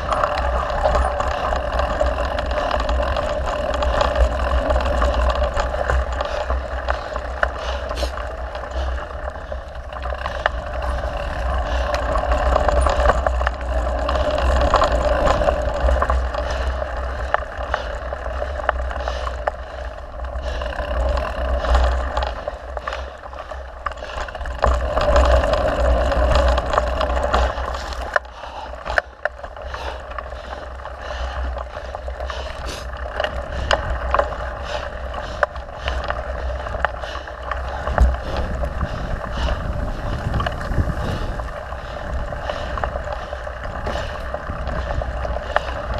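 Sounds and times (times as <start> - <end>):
bike rattles and clicks: 0.0 - 45.9
bike tyre noise: 0.0 - 45.9
wind on microphone: 37.7 - 45.9.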